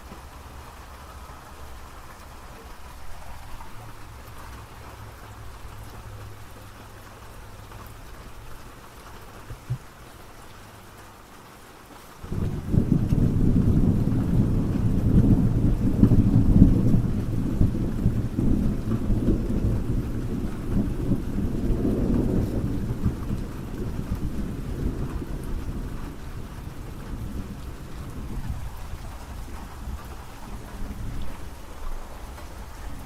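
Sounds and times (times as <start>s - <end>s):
rain falling: 0.0s - 33.0s
low rumble of thunder: 12.2s - 33.0s.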